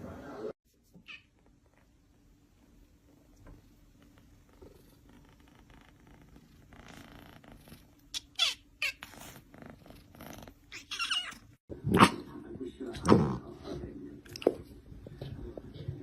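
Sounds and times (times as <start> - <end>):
cat purring: 1.5 - 8.2, 9.0 - 10.8
cat crying: 8.1 - 9.1, 10.7 - 11.5.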